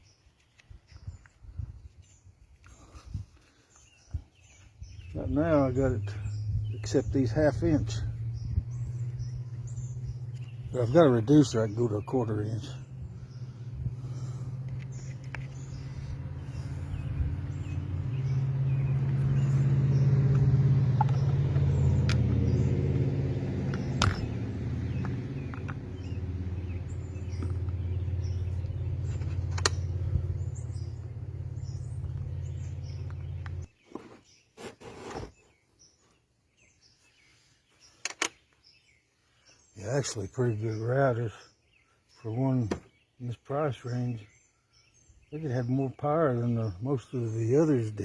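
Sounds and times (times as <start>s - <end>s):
low mechanical hum: 12.7s - 33.7s
sharp clicks: 29.1s - 29.9s.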